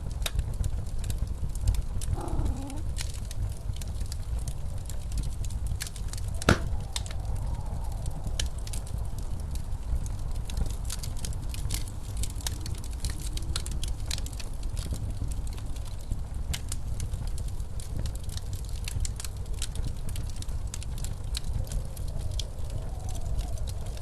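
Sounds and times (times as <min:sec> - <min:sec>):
fireplace crackling and popping: 0:00.0 - 0:24.0
low rumble of wind: 0:00.0 - 0:24.0.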